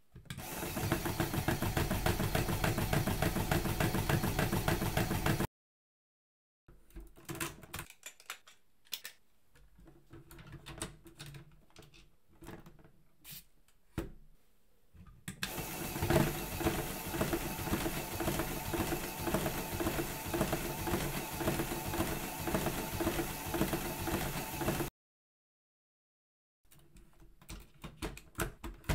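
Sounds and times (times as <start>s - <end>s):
plastic bricks clicking: 7.0s - 9.2s.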